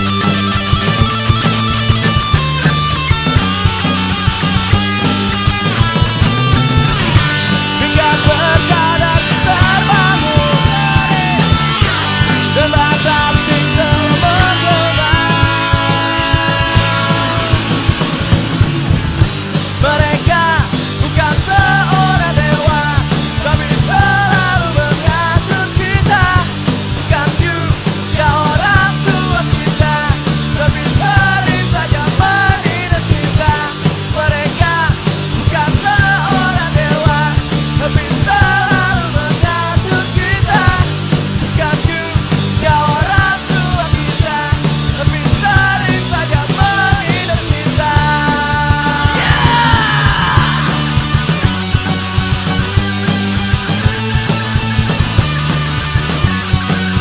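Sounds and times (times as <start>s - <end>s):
bending lead guitar melody: 0.0s - 57.0s
punk rock band playing: 0.0s - 57.0s.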